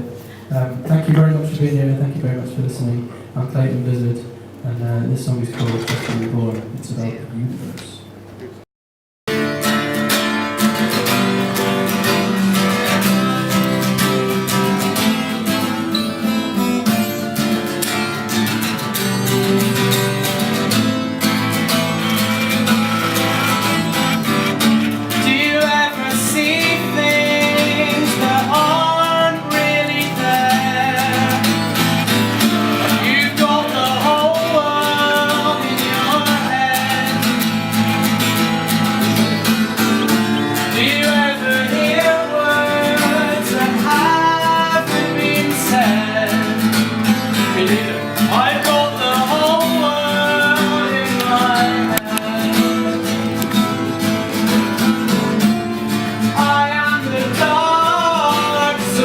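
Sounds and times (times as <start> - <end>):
acoustic guitar strumming: 0.0 - 6.5, 9.3 - 59.0
person singing: 25.1 - 37.6, 39.8 - 53.4, 56.2 - 59.0.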